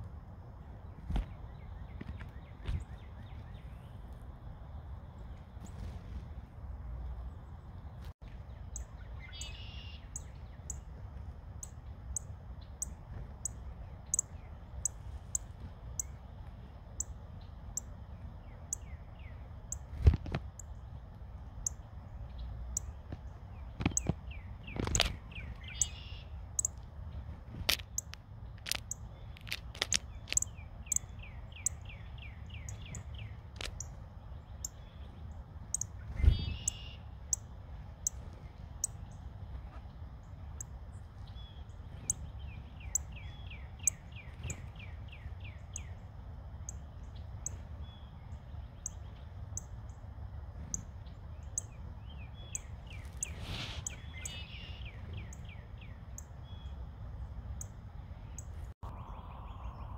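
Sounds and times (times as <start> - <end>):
small birds calling: 8.0 - 20.9, 21.5 - 39.4, 40.2 - 56.9
low rumble: 57.2 - 59.9.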